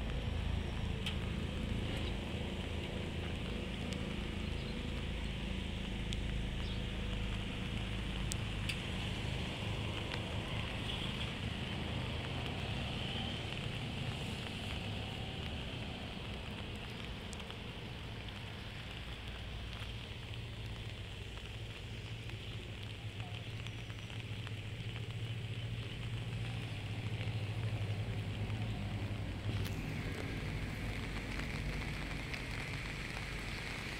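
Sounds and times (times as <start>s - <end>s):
heavy rain: 0.0s - 33.9s.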